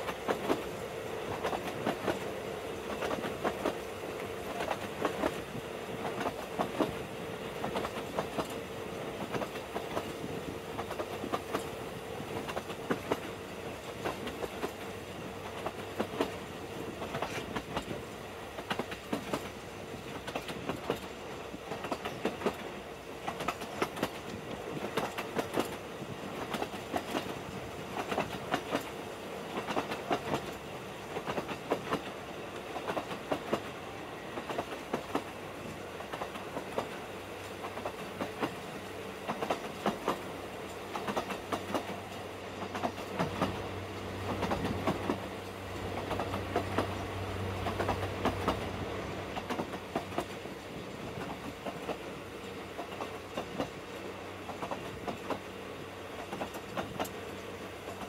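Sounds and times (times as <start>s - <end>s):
train wheels clattering over joints: 7.6s - 48.7s, 49.4s - 52.1s.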